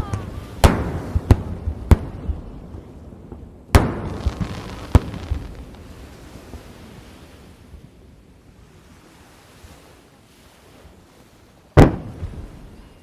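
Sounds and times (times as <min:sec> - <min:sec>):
small firework pops: 0:03.8 - 0:05.9
firework shells bursting: 0:03.8 - 0:06.0.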